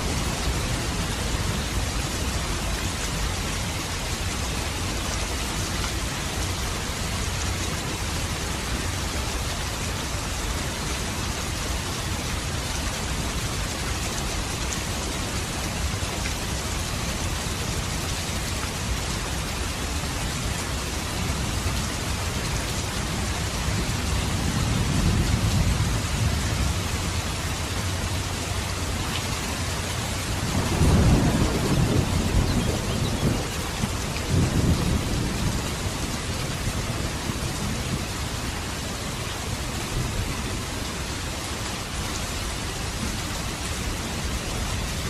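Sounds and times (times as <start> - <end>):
steady rain: 0.0 - 45.0
thunder rolling: 30.4 - 36.0.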